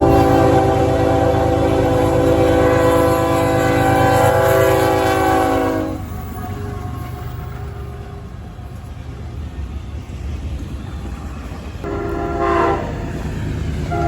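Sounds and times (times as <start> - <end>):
locomotive air horn chord: 0.0 - 6.1, 11.8 - 13.2
low rumble of moving train: 0.0 - 14.0.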